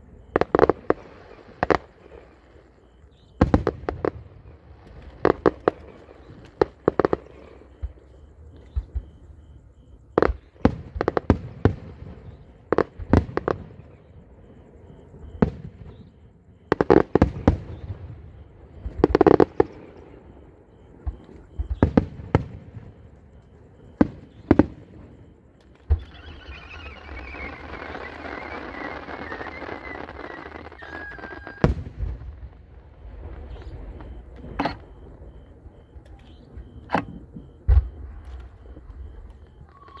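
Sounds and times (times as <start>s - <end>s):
fireworks bursting: 0.0s - 9.2s, 10.1s - 40.0s
hissing falling whistle: 25.8s - 32.3s, 33.2s - 40.0s.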